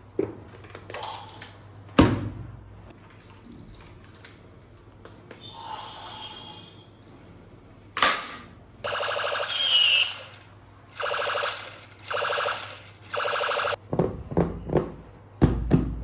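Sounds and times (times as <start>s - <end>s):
buzzy electronic toy sound effect: 8.9s - 13.8s.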